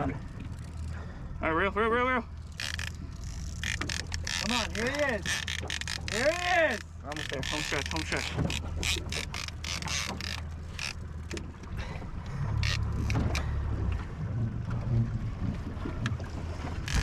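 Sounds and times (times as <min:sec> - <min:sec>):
outboard motor humming: 0:00.0 - 0:17.0
fishing reel clicking: 0:02.4 - 0:11.4, 0:12.6 - 0:13.4.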